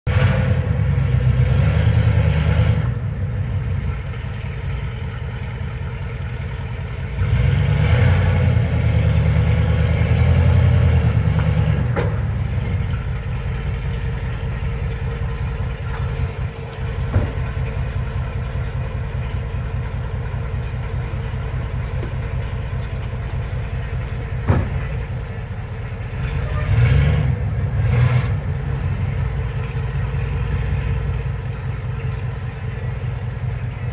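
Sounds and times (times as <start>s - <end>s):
truck engine idling and revving: 0.0s - 33.9s
sharp knocks: 17.0s - 17.6s, 24.4s - 25.0s.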